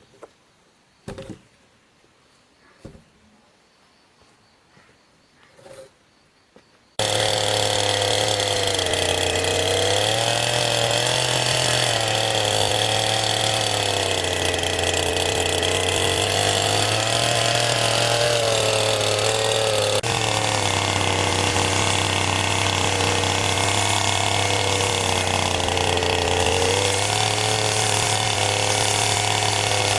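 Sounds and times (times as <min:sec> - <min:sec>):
small engine running: 0:07.0 - 0:29.9.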